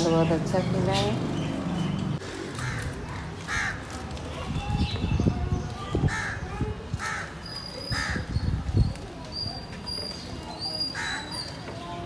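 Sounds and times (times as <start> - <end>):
harsh caw-like bird calls: 2.4 - 4.0, 6.0 - 8.4, 10.9 - 11.5.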